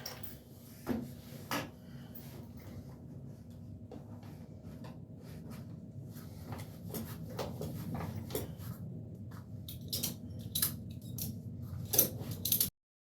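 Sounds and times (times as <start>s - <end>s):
low steady hum: 0.0s - 12.7s.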